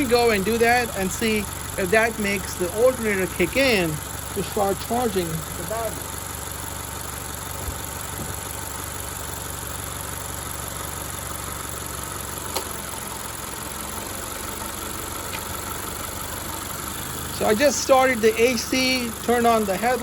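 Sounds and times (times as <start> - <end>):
car engine idling: 0.0 - 20.0
sharp click: 12.5 - 12.8.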